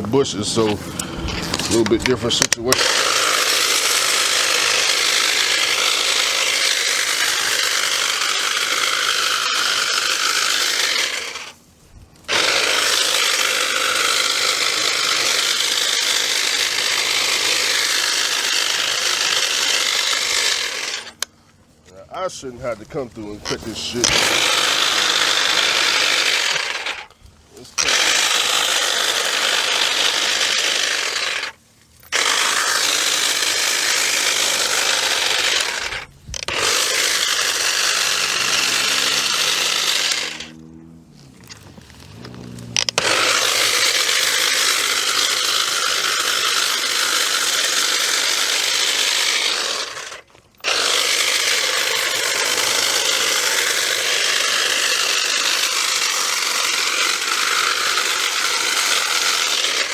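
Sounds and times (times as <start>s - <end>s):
battery cutter cutting bushes: 0.0s - 59.9s.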